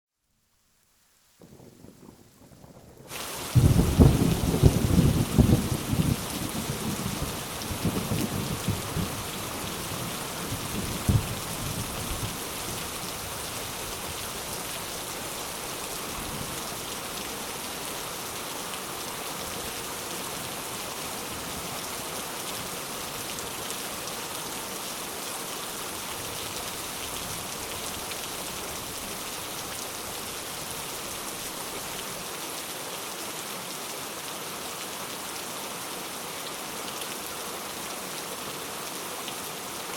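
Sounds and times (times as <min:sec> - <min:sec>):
rain hiss: 0:00.3 - 0:39.9
thunder rumbling: 0:01.4 - 0:12.4
sharp thunder crack: 0:03.5 - 0:06.2.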